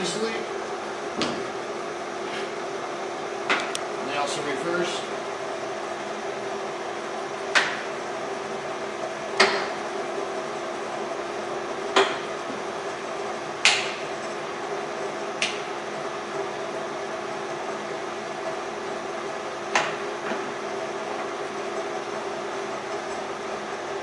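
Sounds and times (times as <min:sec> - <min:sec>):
lathe running with hum: 0:00.0 - 0:24.0.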